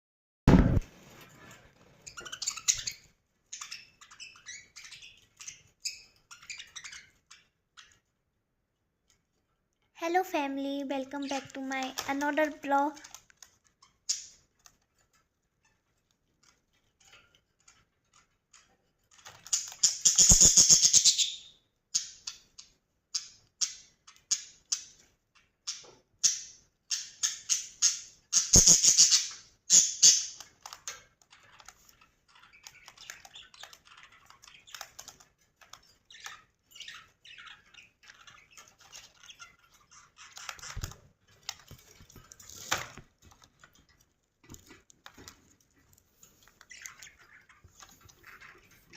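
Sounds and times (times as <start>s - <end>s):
budgerigars chirping: 2.1s - 8.0s, 19.2s - 30.5s, 31.3s - 40.9s.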